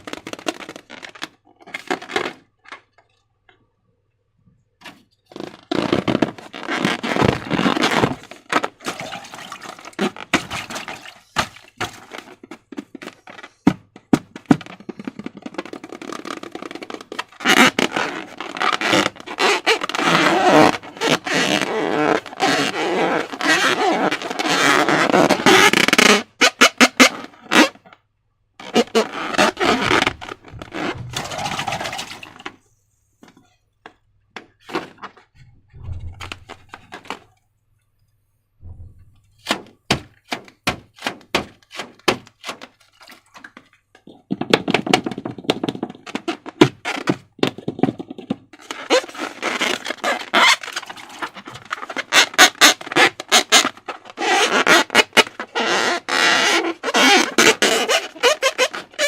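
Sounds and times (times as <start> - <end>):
low thumps: 29.6 - 32.0, 35.3 - 37.1, 38.6 - 39.9.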